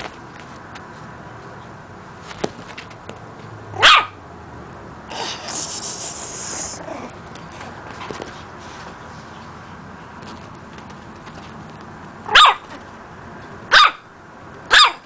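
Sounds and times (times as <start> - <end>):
puppy barking: 3.8 - 4.2, 12.3 - 12.8, 13.7 - 14.1, 14.7 - 15.0
hissing noise: 5.1 - 6.8.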